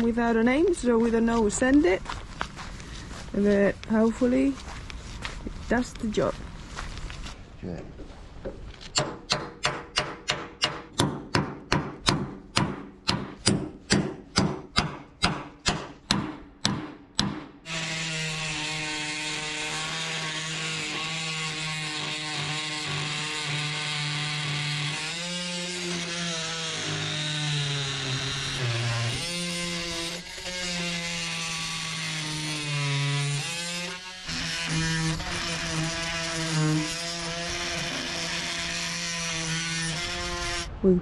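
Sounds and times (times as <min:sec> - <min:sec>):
power tool cutting metal: 0:17.6 - 0:40.7.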